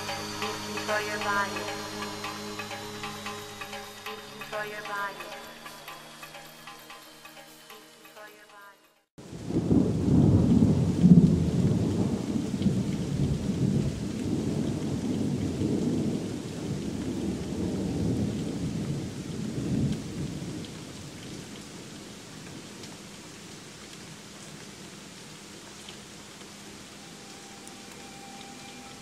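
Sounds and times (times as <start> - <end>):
heavy rain: 0.0 - 7.4, 9.2 - 29.0
thunder rumbling: 9.2 - 21.5.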